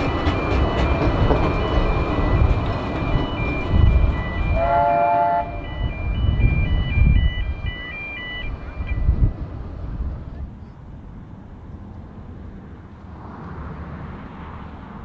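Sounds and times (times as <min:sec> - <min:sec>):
train carriages rumbling: 0:00.0 - 0:12.4
electronic chime tune: 0:00.4 - 0:04.8, 0:05.5 - 0:09.2
train whistle blast: 0:04.5 - 0:05.9.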